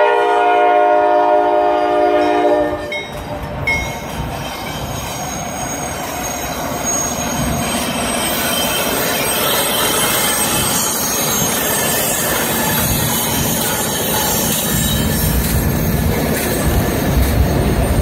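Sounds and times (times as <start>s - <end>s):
locomotive air horn blast: 0.0s - 2.9s
train wheels rumbling on rails: 0.0s - 18.0s.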